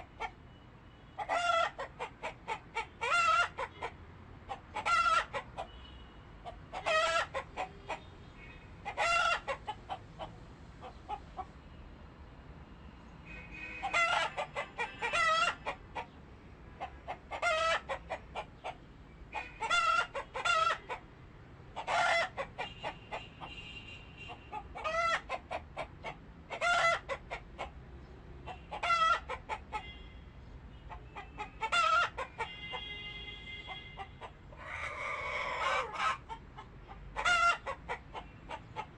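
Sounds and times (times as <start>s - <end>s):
chickens clucking: 1.2s - 5.8s, 6.4s - 8.1s, 8.8s - 11.6s, 13.8s - 16.2s, 16.8s - 21.1s, 21.7s - 23.3s, 24.3s - 27.8s, 28.4s - 29.9s, 30.9s - 32.6s, 33.9s - 38.9s.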